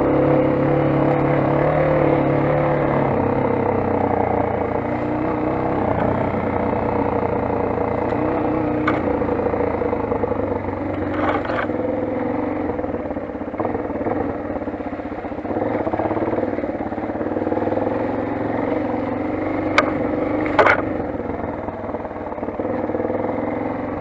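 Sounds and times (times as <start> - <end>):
dirt bike engine running: 0.0 - 24.0
sharp knocks and clatters: 19.7 - 20.9.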